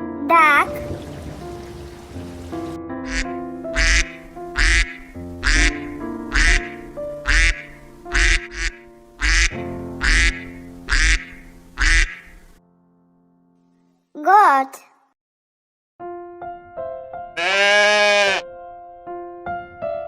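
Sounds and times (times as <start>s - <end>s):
light background music: 0.1s - 12.5s
duck quacking: 0.6s - 12.5s.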